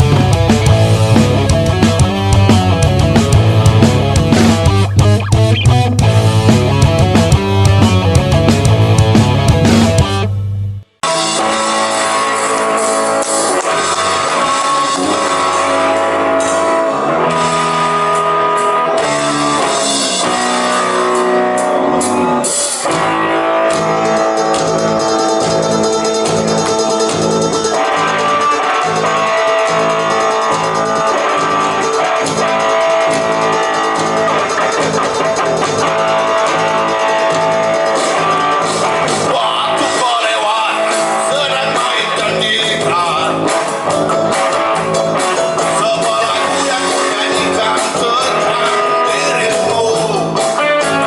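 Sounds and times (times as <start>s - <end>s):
guitar-led rock song: 0.0s - 51.0s.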